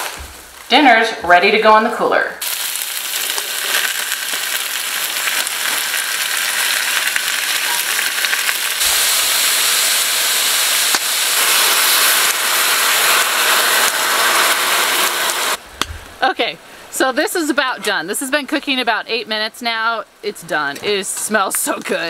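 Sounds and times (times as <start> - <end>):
sausage sizzling in skillet: 2.4 - 15.6.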